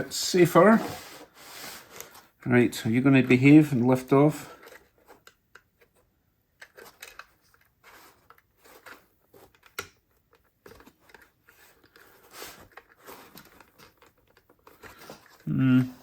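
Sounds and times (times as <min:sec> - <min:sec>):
small clicks and scrapes of hands: 0:04.6 - 0:15.5.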